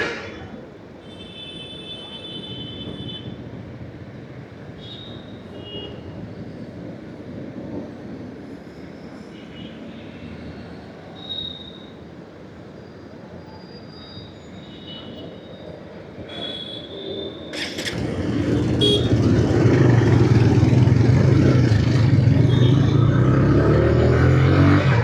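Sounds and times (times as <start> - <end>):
road noise: 0.0 - 13.5, 14.2 - 25.0
motorcycle engine: 17.5 - 25.0.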